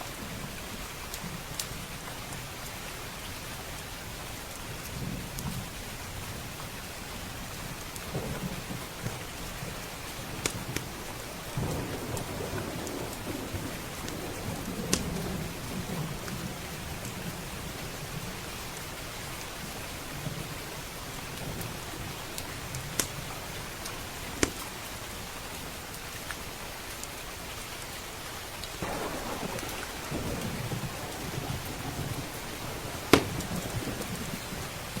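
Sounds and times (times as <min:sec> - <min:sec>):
heavy rain: 0:00.0 - 0:35.0
rolling thunder: 0:08.1 - 0:18.3, 0:28.8 - 0:35.0
wood fire popping: 0:28.8 - 0:35.0.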